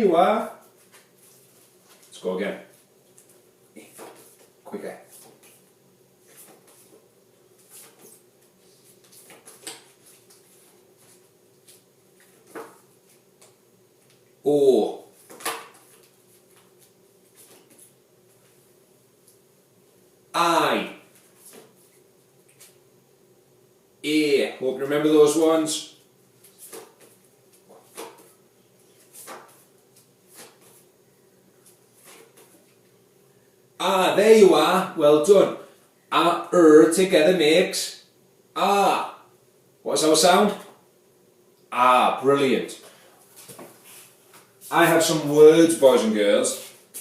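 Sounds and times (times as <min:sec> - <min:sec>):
low room hum: 0:00.0 - 0:47.0
paper cards rustling and shuffling: 0:00.6 - 0:04.5, 0:05.1 - 0:07.0, 0:07.6 - 0:14.2, 0:15.2 - 0:18.6, 0:21.2 - 0:22.8, 0:26.4 - 0:30.9, 0:31.6 - 0:32.8.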